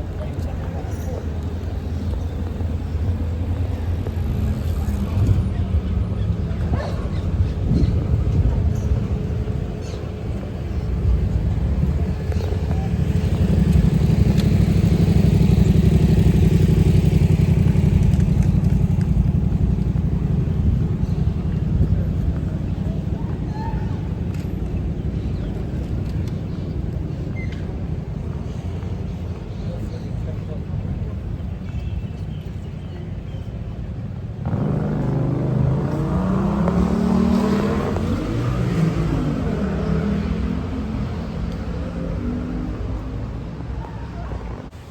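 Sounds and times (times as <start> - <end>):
vehicle engine running: 10.3 - 23.5.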